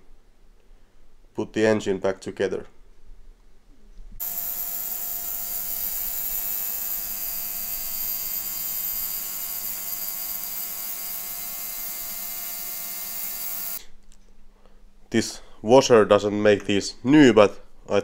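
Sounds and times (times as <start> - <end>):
ultrasonic cleaner buzzing: 4.2 - 13.8.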